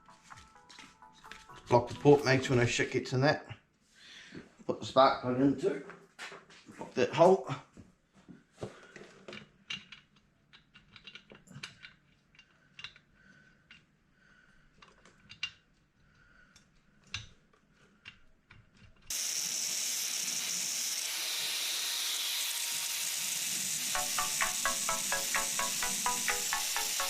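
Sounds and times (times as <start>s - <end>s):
grinder grinding metal: 19.1s - 27.0s.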